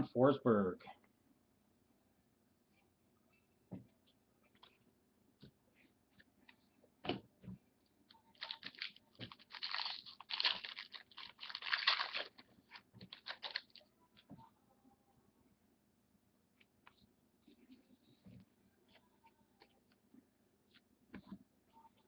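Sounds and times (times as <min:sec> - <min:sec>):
card packaging crinkling: 0:08.3 - 0:13.8.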